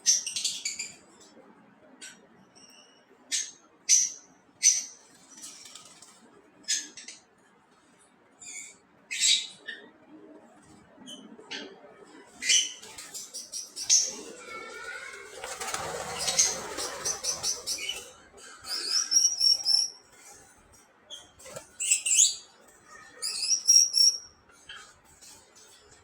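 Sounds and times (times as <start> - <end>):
parrots chirping: 12.4 - 20.4, 21.1 - 24.9
wing flapping: 14.9 - 18.1.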